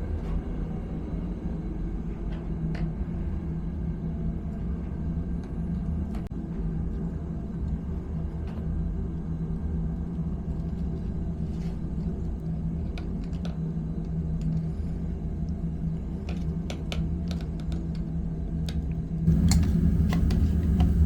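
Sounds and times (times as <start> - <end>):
machine humming: 19.3 - 21.0.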